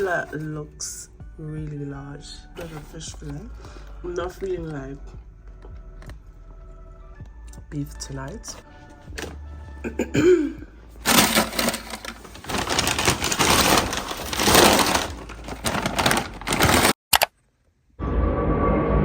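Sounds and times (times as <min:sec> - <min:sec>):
plastic packaging crinkling: 0:11.0 - 0:17.0.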